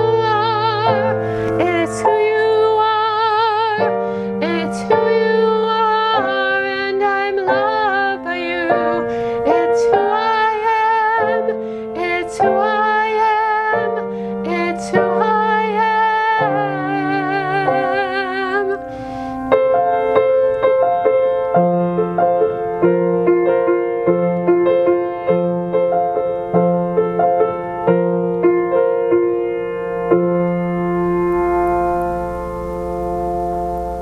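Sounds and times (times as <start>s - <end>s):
person singing hymn with vibrato: 0.0s - 19.4s
keyboard chords: 0.0s - 34.0s.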